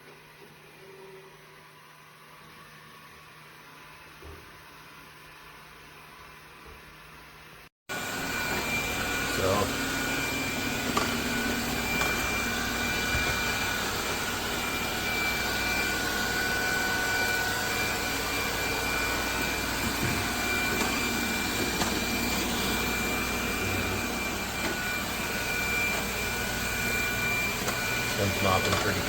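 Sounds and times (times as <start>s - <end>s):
robot vacuum cleaner running: 7.9s - 29.0s.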